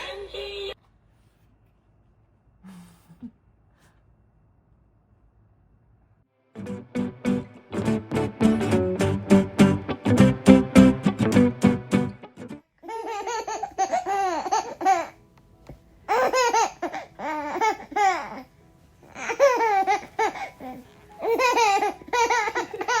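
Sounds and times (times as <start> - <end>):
baby laughing: 12.8 - 15.2, 16.1 - 18.5, 19.1 - 23.0.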